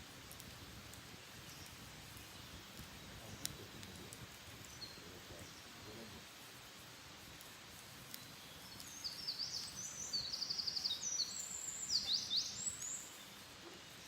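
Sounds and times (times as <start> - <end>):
steady outdoor hiss: 0.0 - 14.0
songbird singing trills: 4.6 - 6.1, 8.2 - 14.0.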